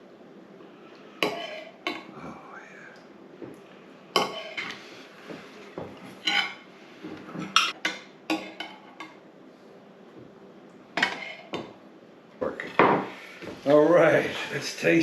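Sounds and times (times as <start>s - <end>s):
cutlery clinking on plates: 4.2s - 6.6s, 7.3s - 9.2s, 11.0s - 11.8s.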